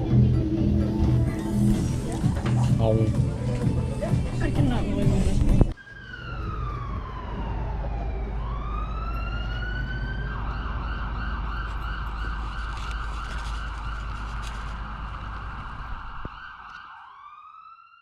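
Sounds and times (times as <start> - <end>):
steady low rumble: 0.0 - 5.8, 11.4 - 16.3
emergency vehicle siren: 5.6 - 18.0.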